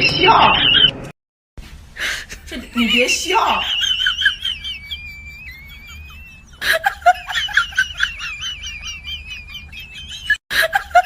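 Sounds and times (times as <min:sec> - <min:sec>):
small bird chirping and whistling: 0:04.6 - 0:06.6.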